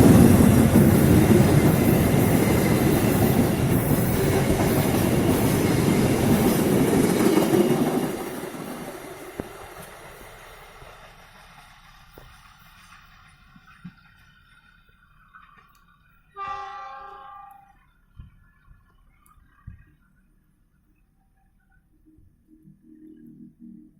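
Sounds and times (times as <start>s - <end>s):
train wheel clatter: 0.0s - 16.0s
passenger train rumbling past: 0.0s - 18.1s.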